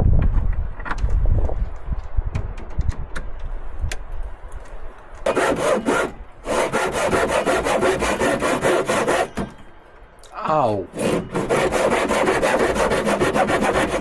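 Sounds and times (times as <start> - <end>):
hand saw cutting wood: 5.2 - 9.6, 10.9 - 14.0.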